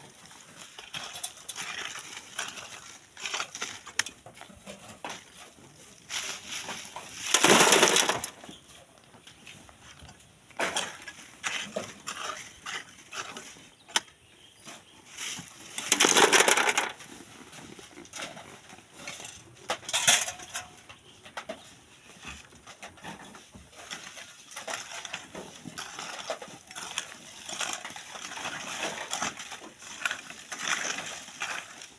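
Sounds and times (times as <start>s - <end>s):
sand and stones pouring: 6.1s - 8.4s.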